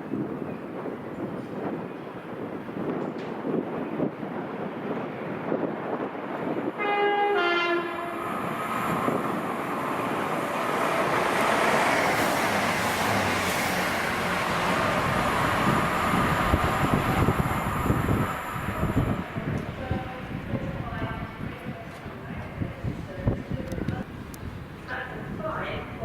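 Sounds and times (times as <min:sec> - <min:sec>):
two-tone train horn: 0:06.8 - 0:08.3
train wheels rushing on rails: 0:07.8 - 0:20.8.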